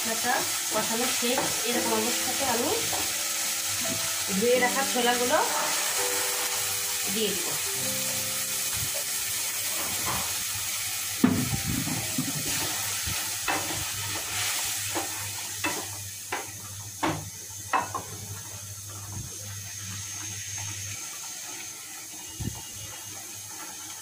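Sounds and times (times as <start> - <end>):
chickpeas sizzling in oil: 0.0 - 24.0
spatula knocking on pan: 2.7 - 3.2.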